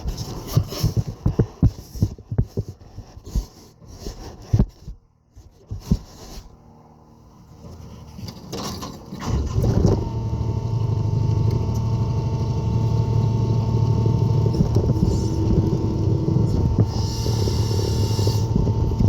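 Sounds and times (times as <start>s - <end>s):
skid steer engine running: 7.4s - 19.0s.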